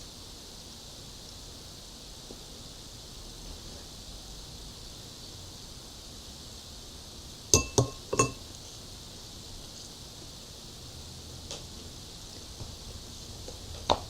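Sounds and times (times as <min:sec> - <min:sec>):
faint steady hiss: 0:00.0 - 0:14.0
fork clinking against a plate: 0:07.6 - 0:08.4.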